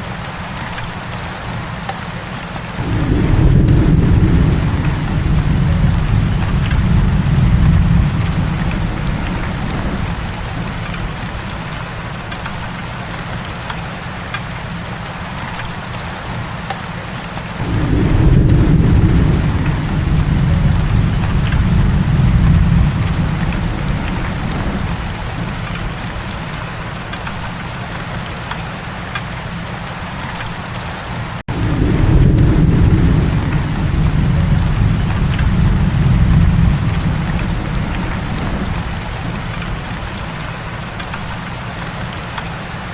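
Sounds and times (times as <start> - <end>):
heavy rain hissing: 0.0 - 42.9
deep rolling thunder: 2.8 - 12.9, 17.6 - 27.2, 31.5 - 41.6.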